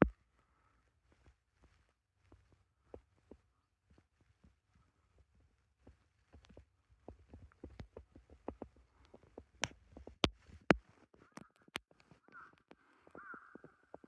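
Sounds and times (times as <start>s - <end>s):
sharp knocks and clicks: 6.4s - 10.8s
bird calling harshly: 11.2s - 14.0s.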